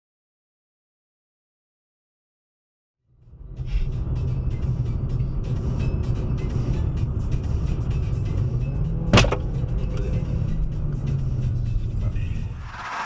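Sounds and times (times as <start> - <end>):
car engine and road rumble: 3.1 - 13.0.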